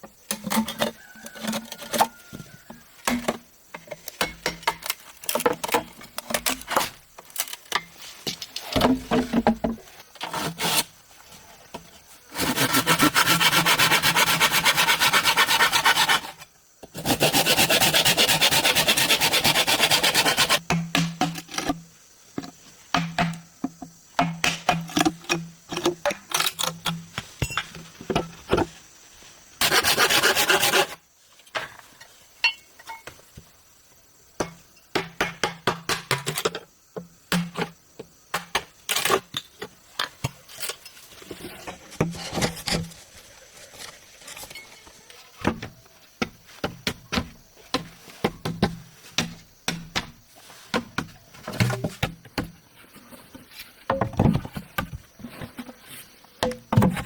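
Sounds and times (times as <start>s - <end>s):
knocks and scrapes on bamboo: 0.2s - 33.5s, 34.4s - 57.0s
quick sawing or rasping strokes: 12.3s - 16.4s, 17.0s - 20.6s, 29.6s - 31.0s.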